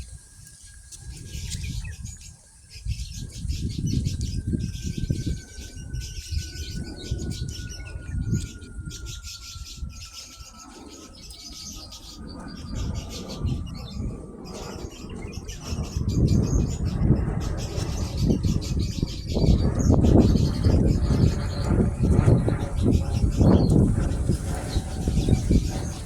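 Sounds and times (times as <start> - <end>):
faint whine falling in pitch: 0.0 - 26.0
small birds chirping: 0.0 - 26.0
low rumble: 11.0 - 26.0.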